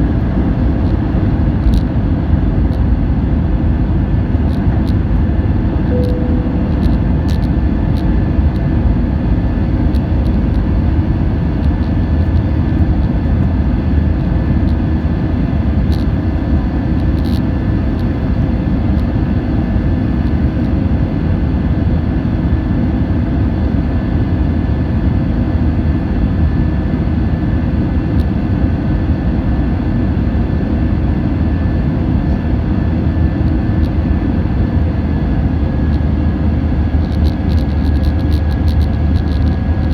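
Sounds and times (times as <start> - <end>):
jet engines roaring with whine: 0.0 - 39.9.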